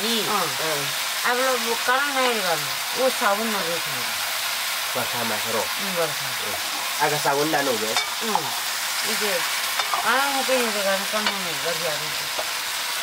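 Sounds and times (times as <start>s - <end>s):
vegetables sizzling in a wok: 0.0s - 13.0s
metal ladle knocking against pan: 9.8s - 10.0s.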